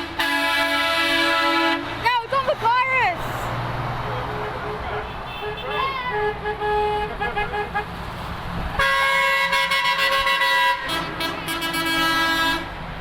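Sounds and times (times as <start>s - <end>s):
truck air horns: 0.0s - 2.3s, 4.2s - 8.1s, 8.8s - 12.8s.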